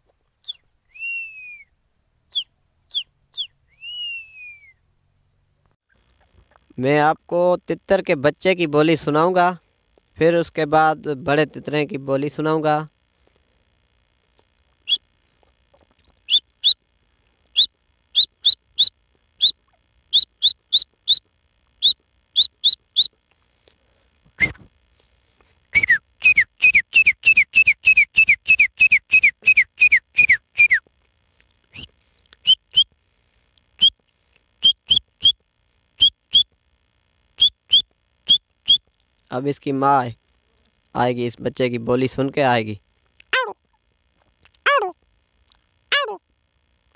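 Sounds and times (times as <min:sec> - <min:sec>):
man whistling bird chirps: 0:00.4 - 0:04.8, 0:16.3 - 0:16.8, 0:17.6 - 0:21.2, 0:21.8 - 0:23.2, 0:24.4 - 0:24.7, 0:25.7 - 0:30.9, 0:31.7 - 0:32.9, 0:34.6 - 0:35.4, 0:36.0 - 0:36.5, 0:37.4 - 0:38.9.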